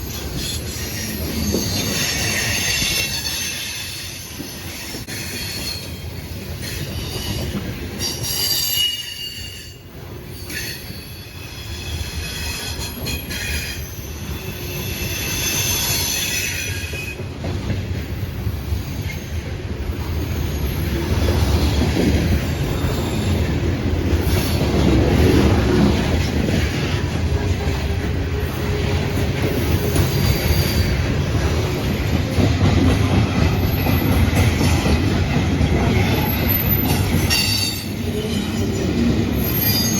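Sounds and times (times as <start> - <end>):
train wheels squealing: 0.0 - 17.2, 18.4 - 23.5, 29.5 - 32.5, 33.4 - 35.1, 35.8 - 39.9
low rumble of train cars: 0.0 - 39.9.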